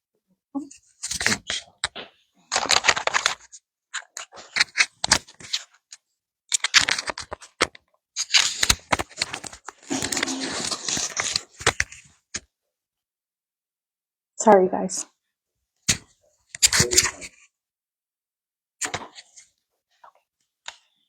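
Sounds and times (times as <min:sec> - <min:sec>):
handling clicks and rustles: 0:06.5 - 0:12.0.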